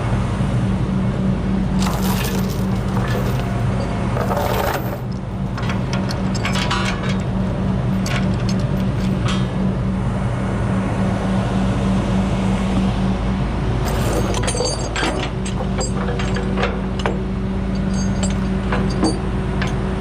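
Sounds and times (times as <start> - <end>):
chains clinking and rattling: 1.8 - 5.0, 13.8 - 19.8.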